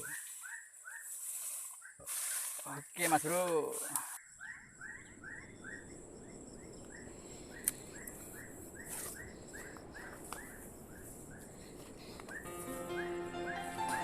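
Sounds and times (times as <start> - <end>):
faint insect hum: 1.2 - 13.4
bird chirping: 4.2 - 14.0.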